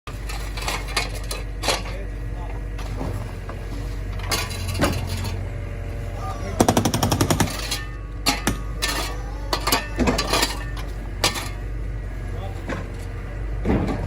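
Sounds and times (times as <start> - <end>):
steady low hum: 0.1 - 14.0
hydraulic breaker hammering: 6.6 - 9.0.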